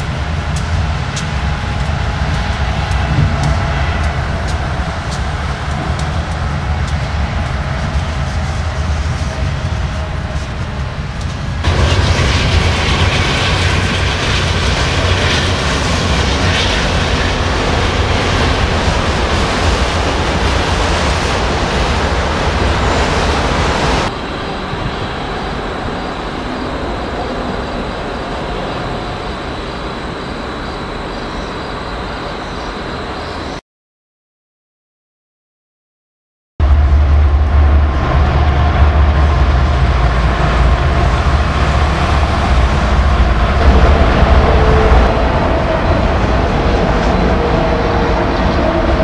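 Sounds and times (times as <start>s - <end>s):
train wheels rumbling on track: 0.0s - 33.5s, 36.6s - 49.0s.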